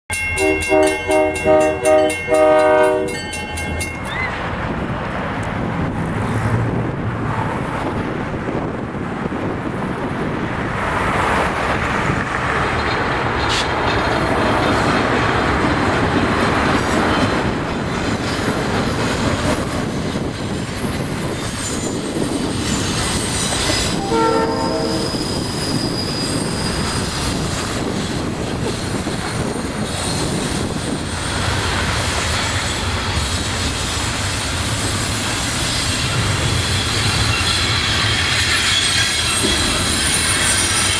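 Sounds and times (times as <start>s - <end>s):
freight train rumbling on rails: 0.1s - 40.9s
train horn blast: 0.4s - 3.3s, 23.6s - 25.5s
high wheel squeal: 2.4s - 4.4s, 20.8s - 31.5s, 32.3s - 40.9s.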